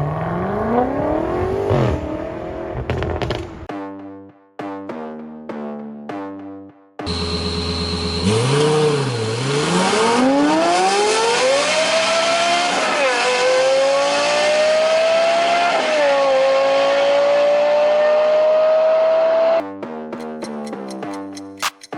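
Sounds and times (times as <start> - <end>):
car engine idling: 7.1 - 9.5
car engine accelerating: 7.1 - 19.6.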